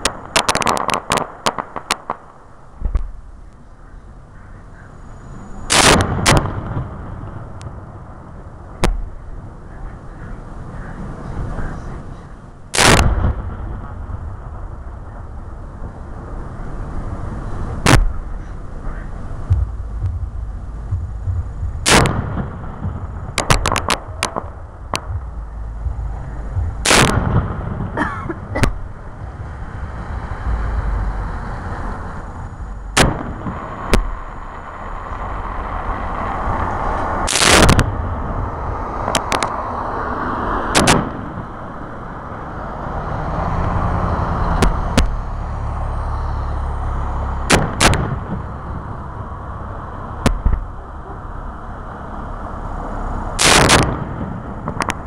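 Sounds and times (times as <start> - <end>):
firework shells bursting: 0.0 - 3.2, 21.8 - 25.1, 26.8 - 28.8, 47.5 - 48.6, 53.4 - 55.0
firework crackling: 0.0 - 3.7, 5.0 - 12.1, 12.7 - 43.1, 43.7 - 55.0.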